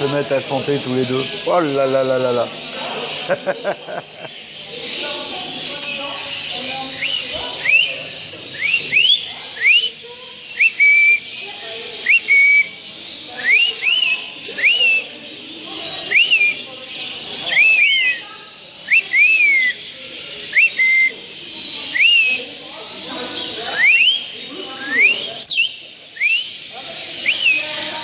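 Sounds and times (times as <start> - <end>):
chatter of many birds: 0.0 - 28.0
bird whistles rising in pitch: 7.0 - 10.0, 12.0 - 12.7, 13.4 - 15.1, 17.5 - 18.2, 18.9 - 19.8, 21.9 - 22.5, 23.7 - 26.6, 27.2 - 27.7.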